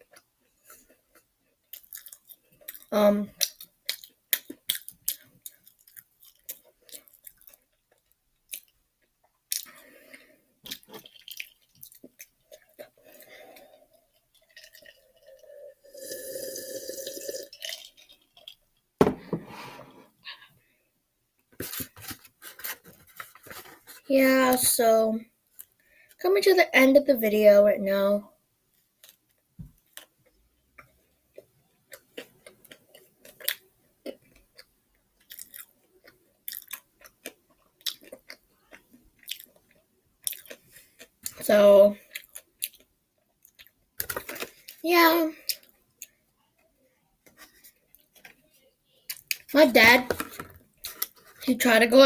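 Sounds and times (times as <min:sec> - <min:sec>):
person chewing crunchy food: 0:00.0 - 0:18.6, 0:29.0 - 0:41.4, 0:42.0 - 0:44.8
person sipping and swallowing: 0:13.6 - 0:18.0
drink set down on table: 0:19.0 - 0:19.5.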